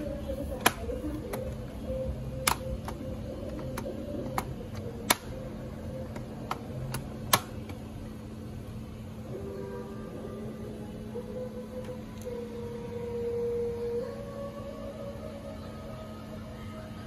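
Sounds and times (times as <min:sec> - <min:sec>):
steady low hum: 0:00.0 - 0:17.0
tools clicking on laptop parts: 0:02.4 - 0:05.4, 0:06.0 - 0:07.8.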